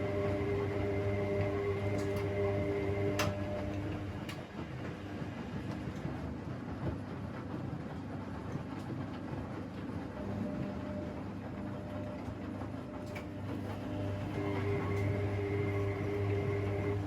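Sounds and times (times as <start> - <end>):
motor hum: 0.0 - 4.4, 10.2 - 17.0
washing machine drum rumbling: 0.0 - 17.0.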